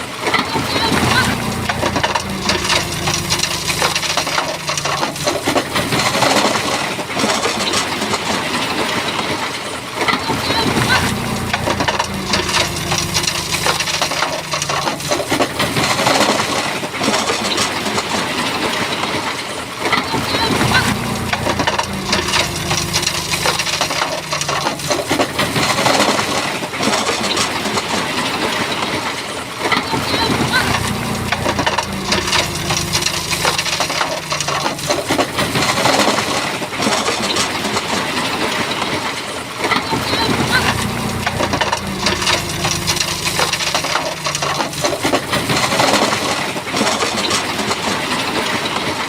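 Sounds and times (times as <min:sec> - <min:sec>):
bulldozer diesel engine: 0:00.0 - 0:49.0
stones clattering and grinding: 0:01.0 - 0:09.4, 0:10.0 - 0:19.2, 0:19.9 - 0:27.9, 0:30.7 - 0:39.1, 0:39.8 - 0:48.9.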